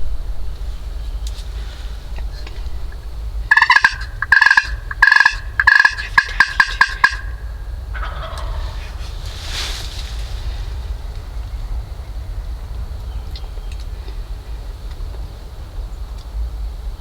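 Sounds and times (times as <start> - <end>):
wild turkey yelping: 2.9 - 9.3.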